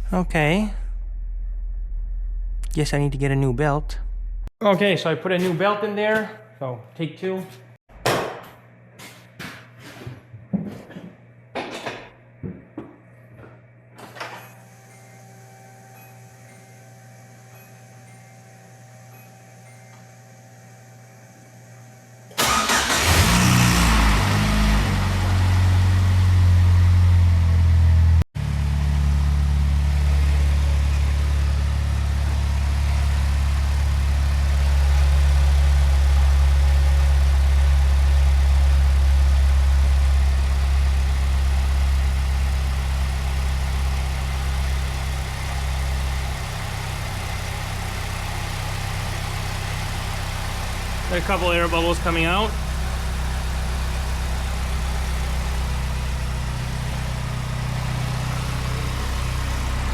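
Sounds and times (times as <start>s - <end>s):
car engine cranking and idling: 22.3s - 59.9s.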